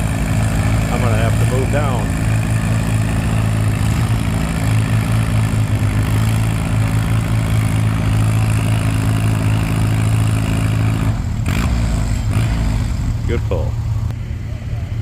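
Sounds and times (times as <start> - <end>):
tractor engine under load: 0.0 - 14.1.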